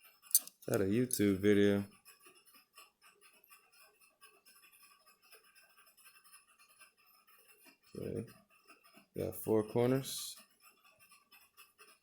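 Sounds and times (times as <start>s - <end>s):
ticks from handling small parts: 0.2s - 1.3s.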